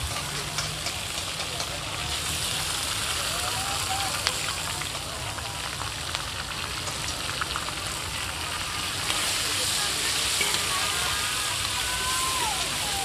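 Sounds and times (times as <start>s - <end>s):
liver sizzling in hot oil: 0.0s - 13.0s
metal spatulas knocking and scraping: 10.4s - 11.0s.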